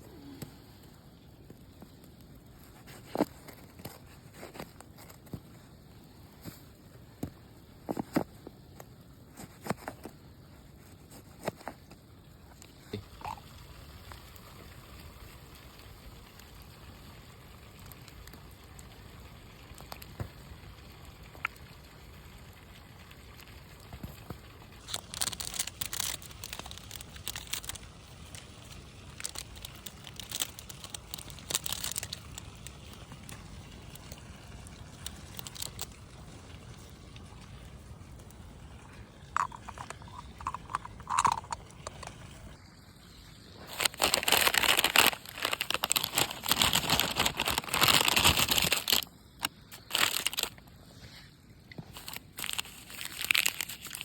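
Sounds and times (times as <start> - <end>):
crunching and rustling clicks: 1.4 - 13.4, 23.4 - 37.2, 38.1 - 42.5, 43.6 - 50.7, 51.7 - 54.0.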